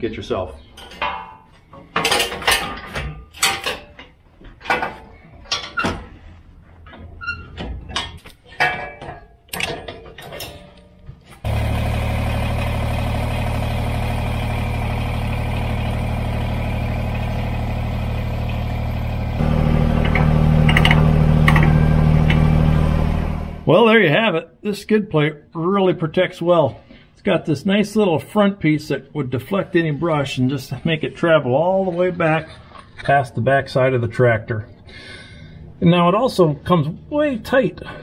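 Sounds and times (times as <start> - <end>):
metal clanks and knocks: 0.8 - 6.2, 6.8 - 11.4, 19.4 - 22.7
tractor diesel engine running: 11.4 - 23.7.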